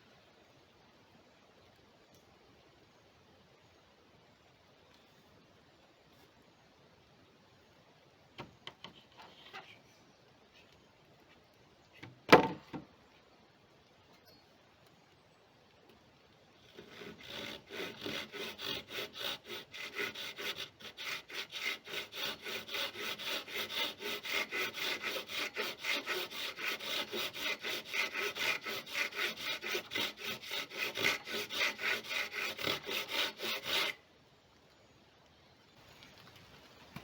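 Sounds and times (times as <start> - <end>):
hand saw cutting wood: 16.6 - 34.0.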